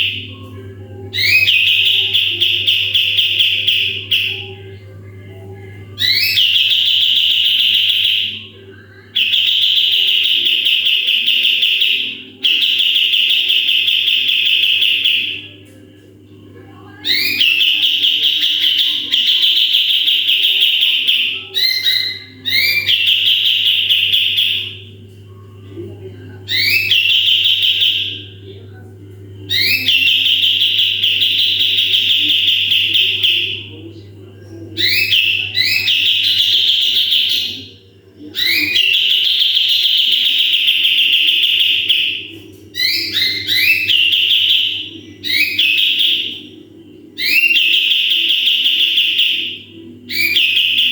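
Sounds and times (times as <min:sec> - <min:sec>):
steady low hum: 0:00.0 - 0:50.9
songbird high-pitched trills: 0:01.1 - 0:04.7, 0:05.9 - 0:08.5, 0:16.9 - 0:24.9, 0:26.5 - 0:28.4, 0:29.5 - 0:33.7, 0:34.8 - 0:37.7, 0:38.3 - 0:46.6.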